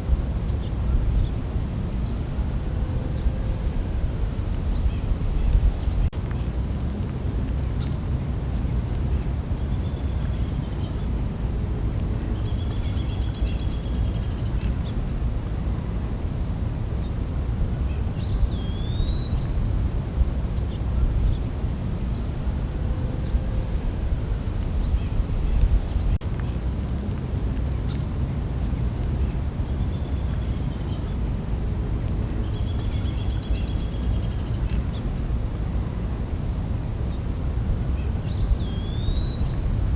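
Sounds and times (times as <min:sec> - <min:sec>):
crickets chirping: 0:00.0 - 0:39.9
insect whine: 0:09.6 - 0:26.2, 0:28.9 - 0:39.9.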